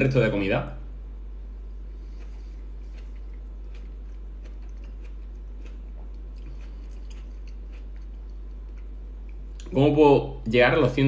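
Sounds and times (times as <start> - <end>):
steady low hum: 0.0 - 11.0
chewing tomato: 1.8 - 9.8.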